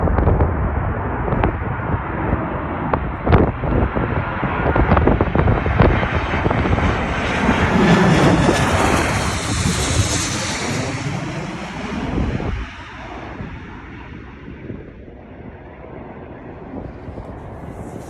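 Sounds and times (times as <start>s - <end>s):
airplane flying low overhead: 0.0s - 18.0s.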